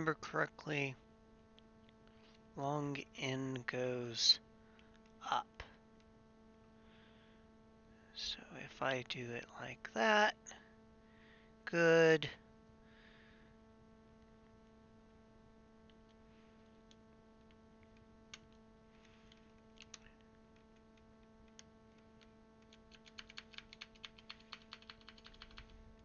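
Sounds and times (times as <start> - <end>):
faint steady hum: 0.0 - 26.0
mechanical keyboard clicking: 19.3 - 20.0, 21.4 - 25.7.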